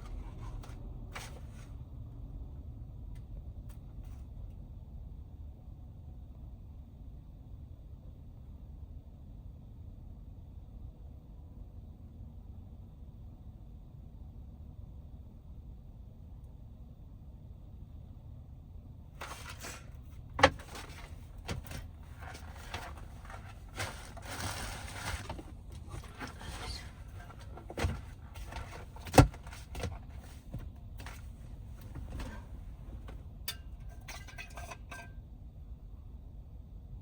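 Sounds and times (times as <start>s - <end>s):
low steady rumble: 0.0s - 37.0s
knocks and bumps: 19.2s - 33.2s.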